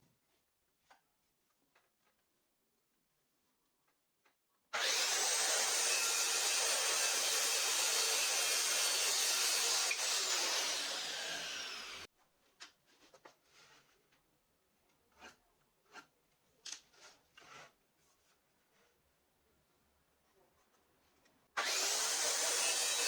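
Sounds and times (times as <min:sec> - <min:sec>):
power saw cutting wood: 0:04.8 - 0:12.1, 0:21.6 - 0:23.0.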